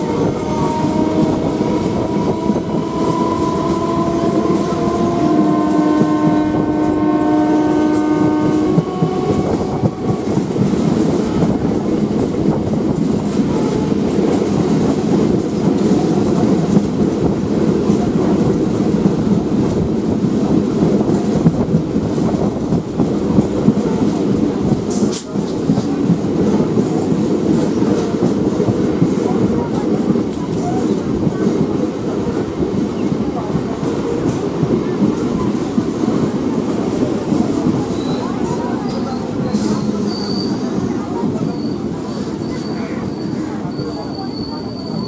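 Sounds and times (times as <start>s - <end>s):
train horn blast: 0.0s - 10.4s
train rumbling along track: 0.0s - 45.0s.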